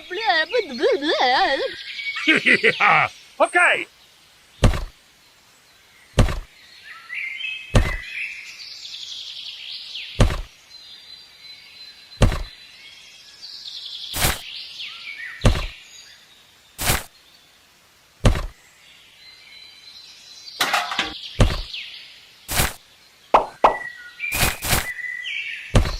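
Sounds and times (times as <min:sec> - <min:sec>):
birds chirping faintly: 0:00.0 - 0:25.9
sharp short knocks: 0:04.6 - 0:04.9, 0:06.2 - 0:06.5, 0:07.8 - 0:08.0, 0:10.2 - 0:10.5, 0:12.2 - 0:12.5, 0:15.4 - 0:15.8, 0:18.2 - 0:18.6, 0:20.6 - 0:21.7, 0:23.4 - 0:23.8.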